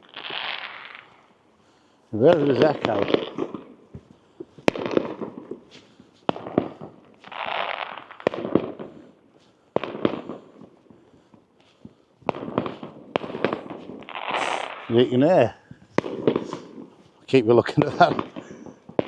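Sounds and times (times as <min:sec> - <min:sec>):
fireworks bangs echoing: 0:00.0 - 0:19.0
fireworks crackling: 0:00.0 - 0:19.0.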